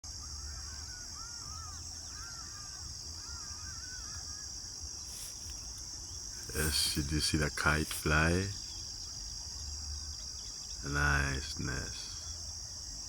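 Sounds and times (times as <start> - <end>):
high insect drone: 0.0 - 13.0
distant birds calling: 0.1 - 13.0.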